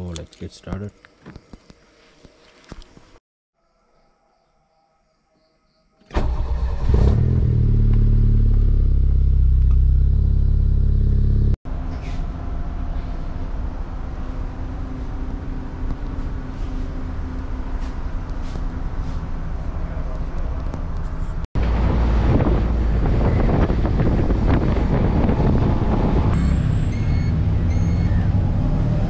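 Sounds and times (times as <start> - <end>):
train carriage interior hum: 11.7 - 26.4.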